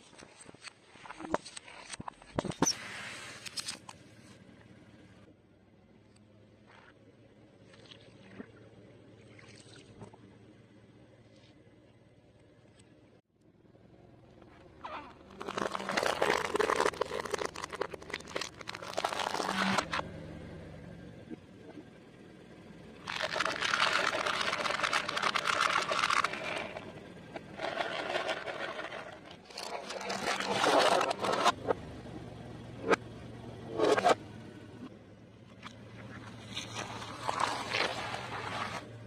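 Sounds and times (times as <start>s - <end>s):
fried food crunching under tyre: 15.2s - 19.9s, 23.0s - 26.8s.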